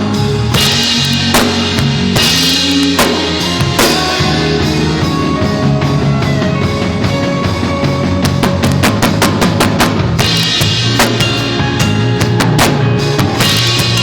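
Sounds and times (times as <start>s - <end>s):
cymbal crashes: 0.0s - 4.9s, 10.2s - 14.0s
drum kit playing: 0.0s - 14.0s
sustained bass and chords: 0.0s - 14.0s.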